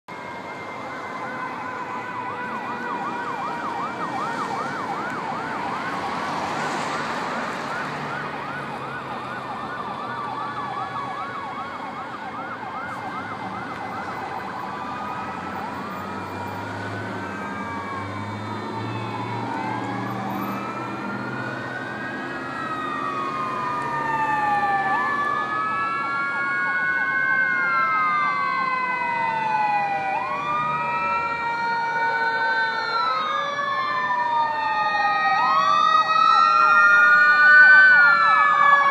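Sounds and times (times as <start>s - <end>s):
fire engine sirens: 0.1s - 38.9s
truck engines running: 0.1s - 38.9s.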